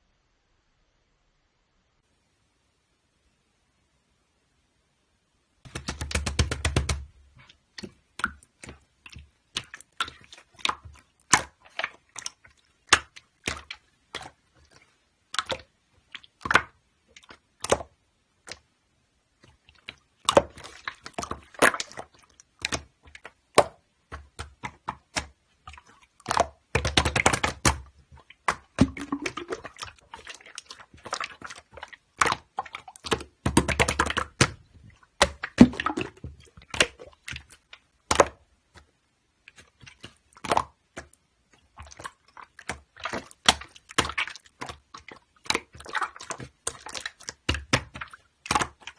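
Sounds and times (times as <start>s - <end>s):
slime clicking and popping: 5.7s - 7.1s, 19.9s - 38.9s, 41.8s - 48.9s.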